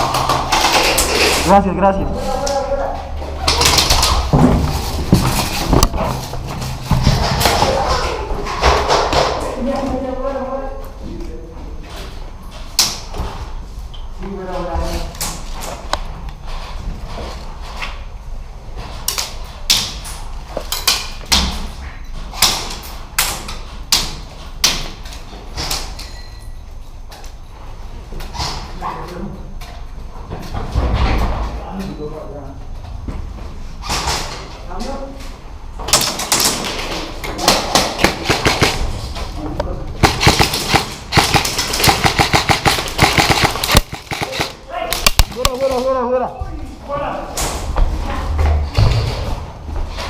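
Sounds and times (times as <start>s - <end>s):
airsoft guns firing: 37.4s - 38.9s, 40.0s - 45.6s.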